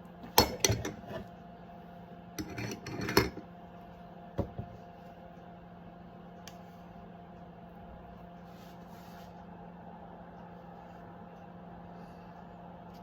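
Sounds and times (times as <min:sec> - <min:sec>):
steady low hum: 0:00.0 - 0:13.0
kitchenware clattering: 0:00.4 - 0:01.3, 0:02.4 - 0:03.4.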